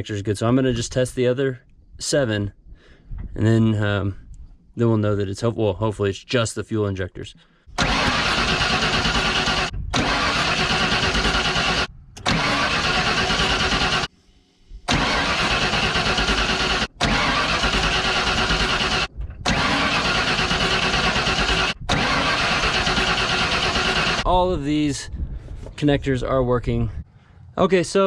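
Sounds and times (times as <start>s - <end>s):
engine cranked by starter: 7.7s - 14.2s, 14.8s - 24.3s.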